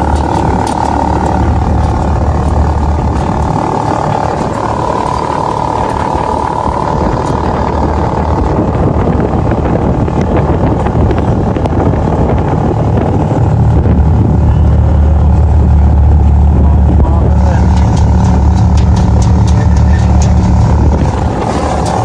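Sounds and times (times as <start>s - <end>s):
dense rushing noise: 0.0s - 22.0s
motorcycle engine running: 0.0s - 22.0s.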